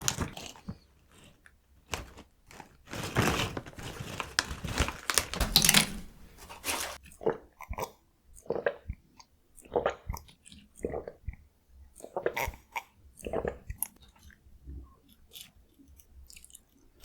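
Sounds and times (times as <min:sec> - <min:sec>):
plastic bag crinkling: 0:01.9 - 0:07.0
plastic bag tearing: 0:02.0 - 0:07.0.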